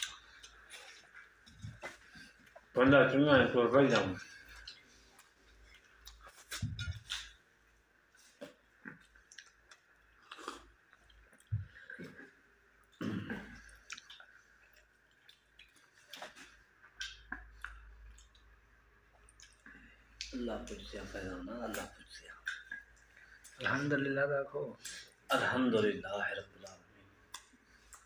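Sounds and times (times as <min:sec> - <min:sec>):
wet mouth clicks and lip smacks: 0:08.4 - 0:11.5, 0:13.7 - 0:18.6.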